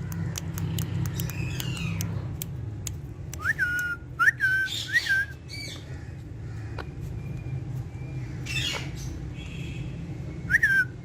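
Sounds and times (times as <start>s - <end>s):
sharp clicks: 0.0s - 4.0s
parrot whistling: 3.4s - 5.6s, 10.5s - 11.0s.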